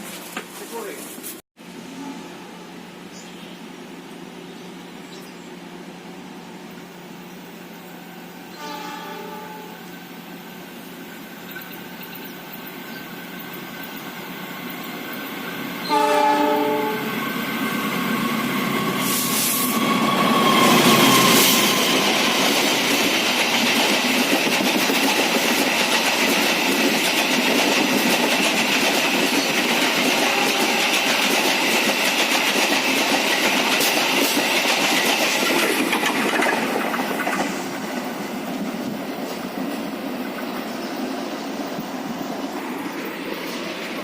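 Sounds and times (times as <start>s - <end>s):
train wheels clattering on rails: 17.1s - 40.6s.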